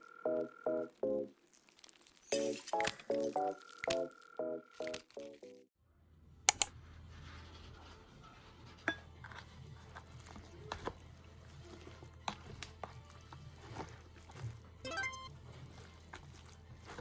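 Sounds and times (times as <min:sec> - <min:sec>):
dishes and utensils clinking: 0:02.4 - 0:03.1, 0:08.8 - 0:11.0.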